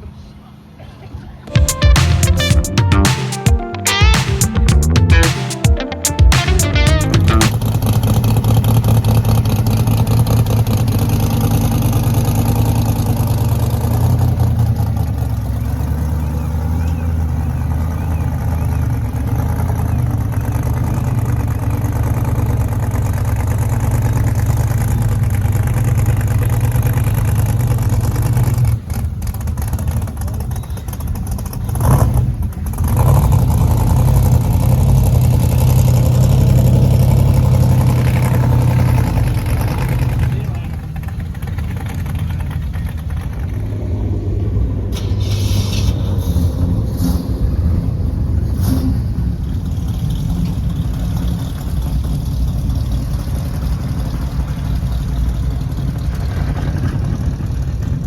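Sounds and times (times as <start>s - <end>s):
car engine rumbling: 33.8s - 58.0s.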